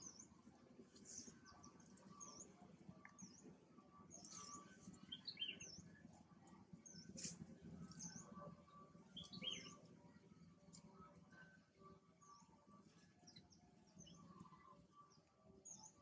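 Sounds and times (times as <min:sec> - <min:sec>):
faint bird chirps: 0:00.0 - 0:06.1, 0:06.8 - 0:09.9
quiet outdoor background noise: 0:00.0 - 0:16.0.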